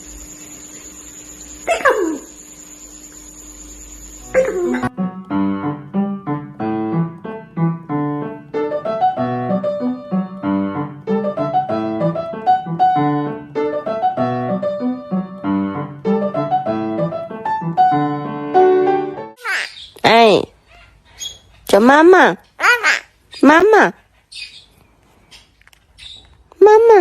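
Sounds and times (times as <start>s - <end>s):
piano music: 4.2s - 19.4s.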